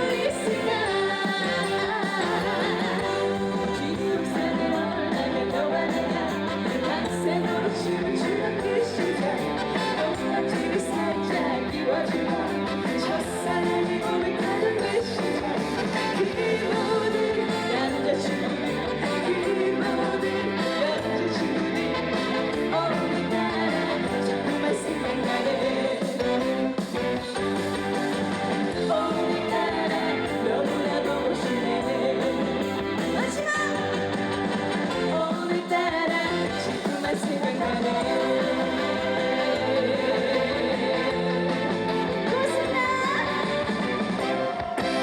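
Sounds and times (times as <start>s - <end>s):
woman singing live: 0.0s - 21.6s, 28.8s - 34.0s, 34.9s - 41.3s, 42.2s - 43.7s
band accompaniment: 0.0s - 45.0s.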